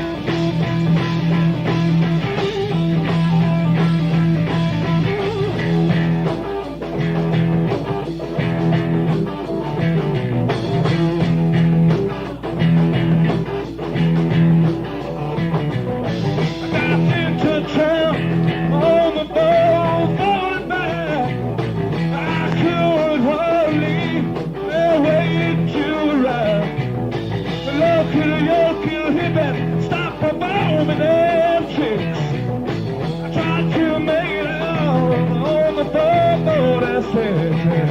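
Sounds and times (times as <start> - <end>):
live rock band playing: 0.0 - 37.9
wavering lead guitar line: 0.0 - 37.9.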